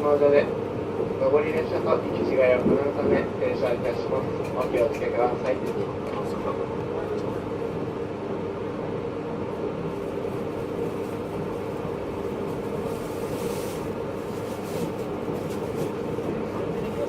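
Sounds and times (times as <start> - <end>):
train low rumble and hum: 0.0 - 17.0.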